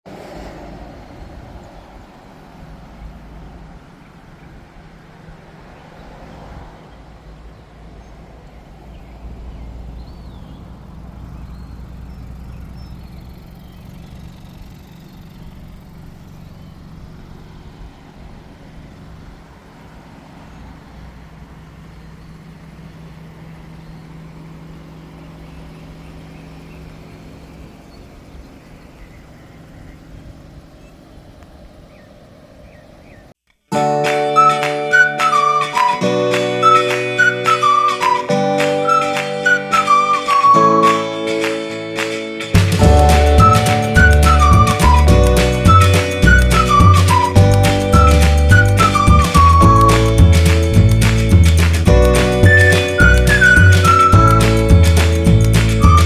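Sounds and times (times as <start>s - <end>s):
car engine idling: 6.9s - 32.5s, 42.5s - 56.0s.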